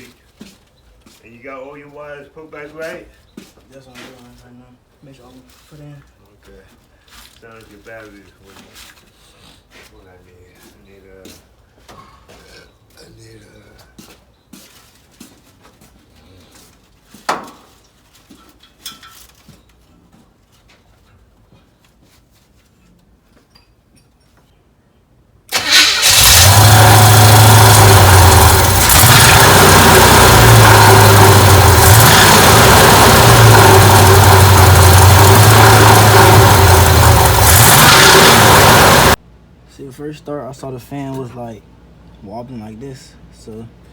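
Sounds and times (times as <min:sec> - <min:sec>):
engine running steadily: 0:25.5 - 0:39.2.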